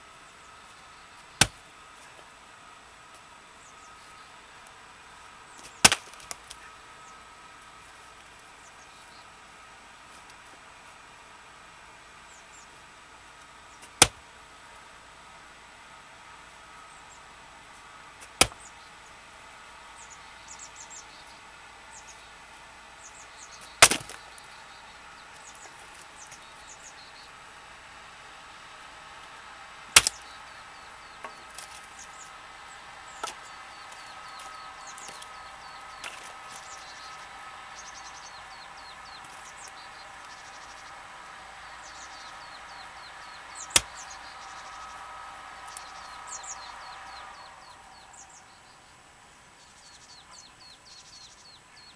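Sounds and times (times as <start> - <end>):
birds chirping: 0.0 - 51.9
axe striking wood: 1.4 - 1.6, 5.6 - 6.6, 13.9 - 14.2, 18.2 - 18.6, 23.7 - 24.2, 30.0 - 30.2, 31.2 - 31.9, 33.2 - 35.3, 36.0 - 36.6, 43.7 - 44.0.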